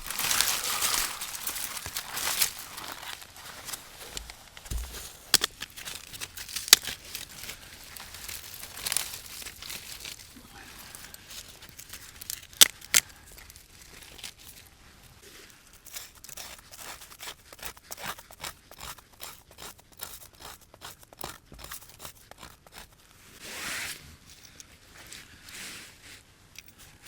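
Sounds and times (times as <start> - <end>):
crinkling and tearing: 0.0 - 14.7.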